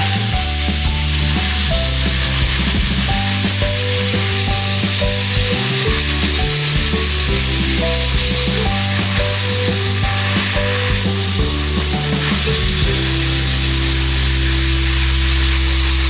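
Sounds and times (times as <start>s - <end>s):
dense sizzling hiss: 0.0s - 16.0s
music of held low notes: 0.0s - 16.0s.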